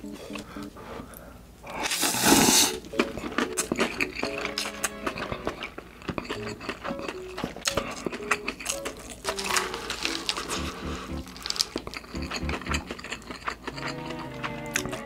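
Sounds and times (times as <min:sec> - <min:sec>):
chewing and wet mouth clicks: 0:05.2 - 0:15.0.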